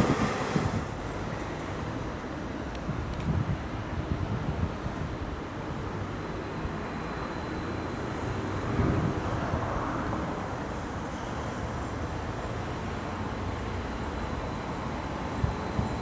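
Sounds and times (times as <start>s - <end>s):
train approaching rumble: 0.0s - 2.6s.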